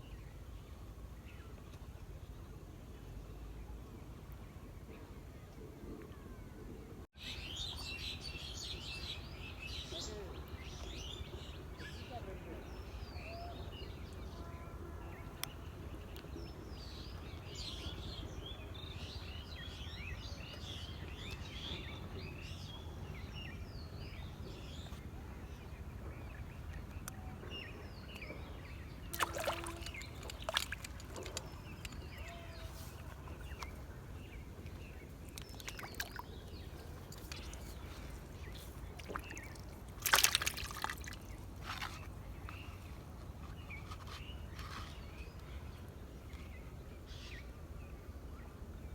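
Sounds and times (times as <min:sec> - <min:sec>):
birds chirping: 0:25.7 - 0:47.9
water splashing: 0:29.1 - 0:33.7, 0:35.2 - 0:42.1.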